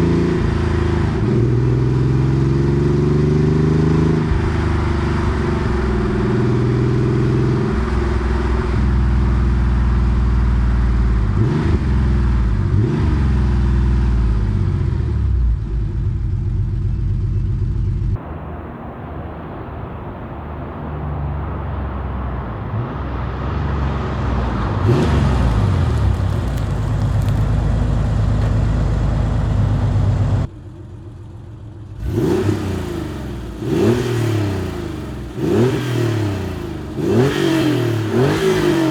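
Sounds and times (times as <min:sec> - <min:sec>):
sports car exhaust revving: 0:00.0 - 0:31.0, 0:31.8 - 0:38.9.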